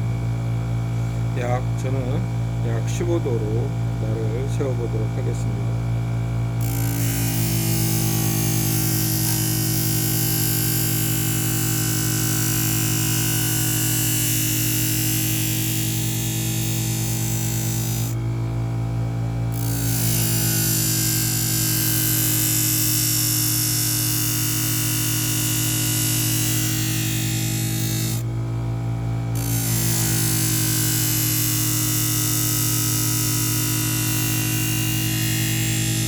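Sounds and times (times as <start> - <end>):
knife grinding hiss: 6.6 - 18.2, 19.6 - 28.2, 29.4 - 36.0
sharpener motor humming: 6.6 - 18.3, 19.4 - 28.6, 29.2 - 36.0.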